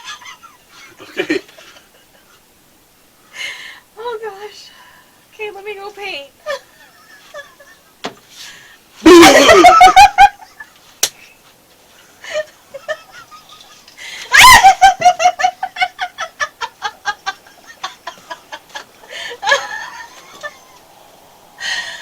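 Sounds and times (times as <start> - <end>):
woman laughing: 6.4 - 7.9, 9.0 - 10.8, 12.2 - 20.8.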